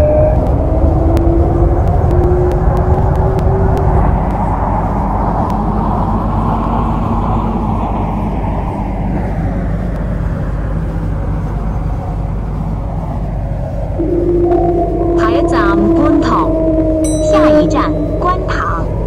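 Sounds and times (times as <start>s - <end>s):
train motor hum: 0.0s - 19.0s
wheels rumbling on rail: 0.0s - 19.0s.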